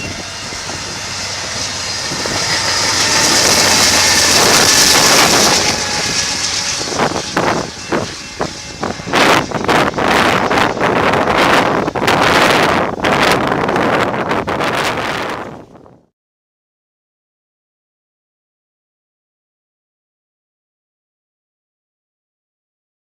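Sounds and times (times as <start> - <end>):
train rushing past: 0.0 - 15.8
wind buffeting microphone: 0.0 - 16.1.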